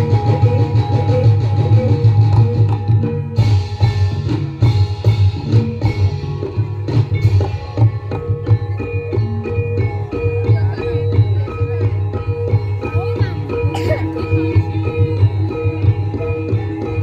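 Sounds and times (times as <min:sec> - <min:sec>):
drums: 0:00.0 - 0:17.0
mallet-struck tuned percussion: 0:00.0 - 0:17.0.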